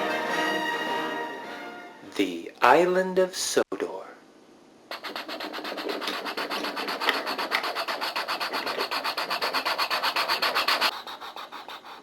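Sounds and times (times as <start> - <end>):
toy train rasping clatter: 4.9 - 12.0.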